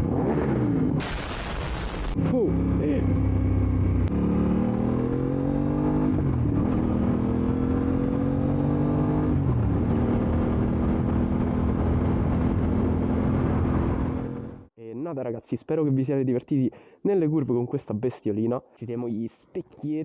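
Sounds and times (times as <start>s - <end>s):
motorcycle engine revving: 0.0s - 14.6s.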